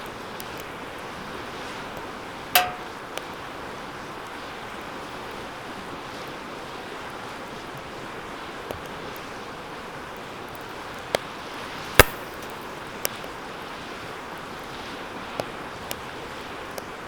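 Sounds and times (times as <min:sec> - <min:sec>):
metal fire pit clang: 0:02.6 - 0:03.0, 0:12.0 - 0:12.6
small metallic ticks: 0:02.6 - 0:03.0.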